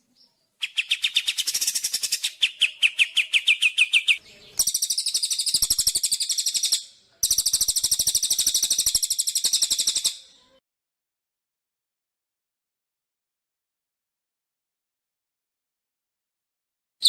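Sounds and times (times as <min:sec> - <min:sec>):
songbird sharp chirps: 0:00.0 - 0:10.6.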